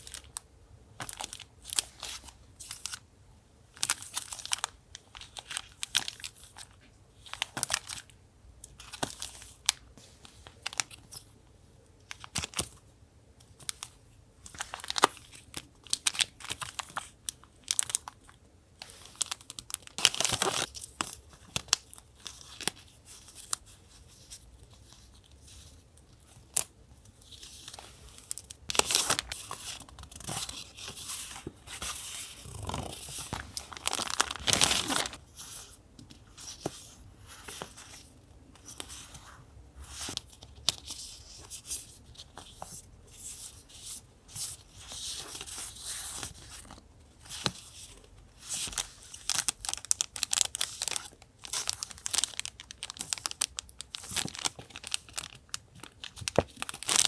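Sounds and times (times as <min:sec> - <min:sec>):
paper crinkling and tearing: 0:27.2 - 0:35.5, 0:47.3 - 0:57.0.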